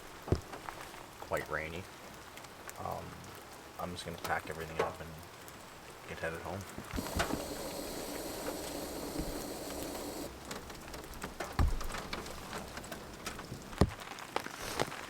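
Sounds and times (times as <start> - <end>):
rain falling: 0.0 - 15.0
raindrops knocking: 6.9 - 14.1.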